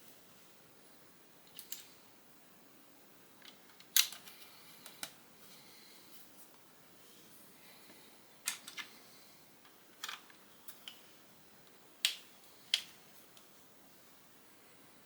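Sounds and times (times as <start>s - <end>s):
plastic bricks clicking together: 3.4s - 5.2s, 10.0s - 11.0s.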